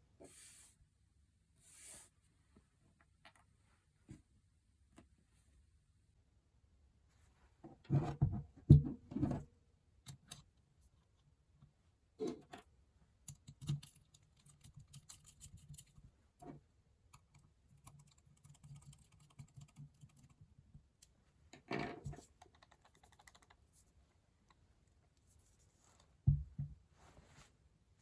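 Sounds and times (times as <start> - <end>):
small metal parts clicking and tapping: 12.4 - 16.0.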